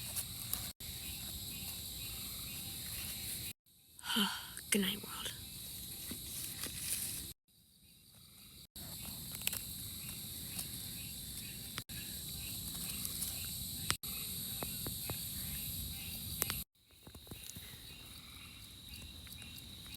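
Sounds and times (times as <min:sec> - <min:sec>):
crickets chirping: 0:00.0 - 0:19.9.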